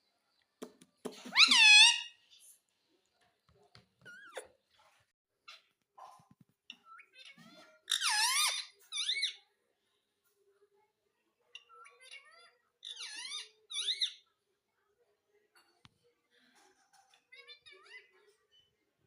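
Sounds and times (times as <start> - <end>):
parakeet squawking: 1.2 - 2.2, 6.9 - 9.4, 11.6 - 14.2.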